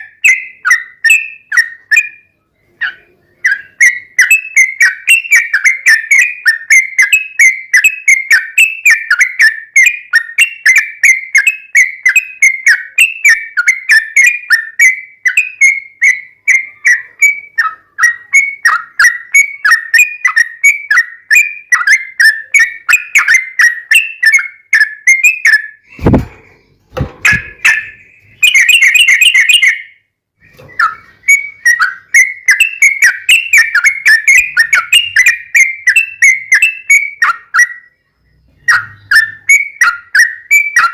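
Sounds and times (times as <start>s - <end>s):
bird singing chattering whistles: 0.0s - 26.2s, 27.2s - 40.9s
sharp thump: 25.9s - 27.6s.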